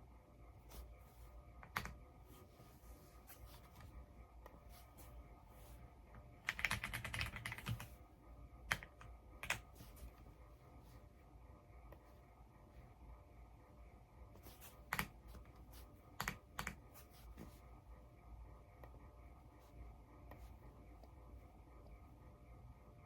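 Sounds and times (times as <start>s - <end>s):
mechanical keyboard keystrokes: 6.5s - 7.8s.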